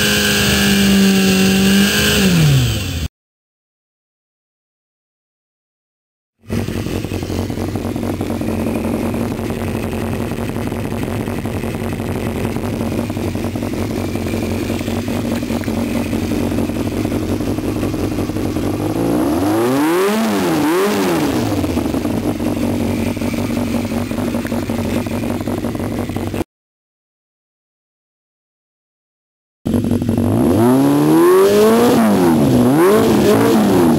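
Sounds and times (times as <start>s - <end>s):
motorcycle engine idling: 6.4s - 26.4s, 29.7s - 31.0s.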